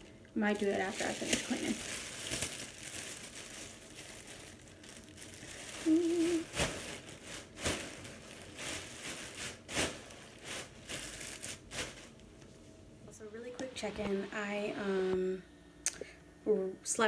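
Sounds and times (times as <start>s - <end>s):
crinkling handling noises: 0.2s - 12.9s.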